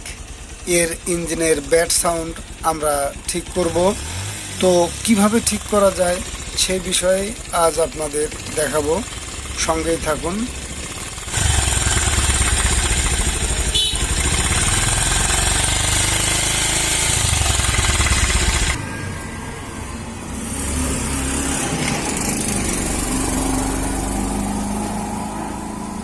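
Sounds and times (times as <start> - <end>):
motorcycle engine clattering: 0.0 - 18.8.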